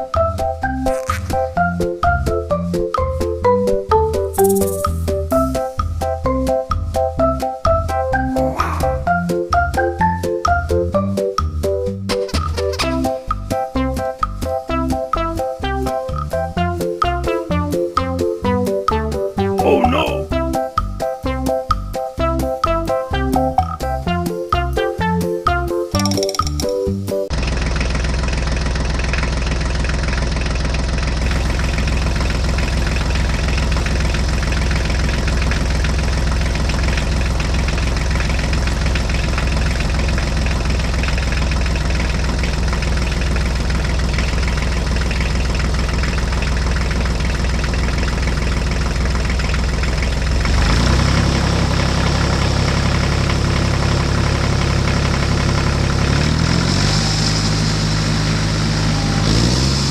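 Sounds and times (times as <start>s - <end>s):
tractor diesel engine running: 25.5s - 59.9s.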